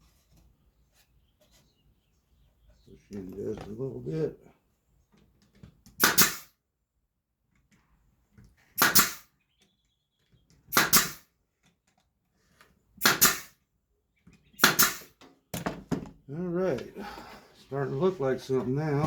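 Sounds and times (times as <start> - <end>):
brad nailer firing: 6.0 - 6.6, 8.8 - 9.3, 10.7 - 11.3, 13.0 - 13.6, 14.6 - 16.0.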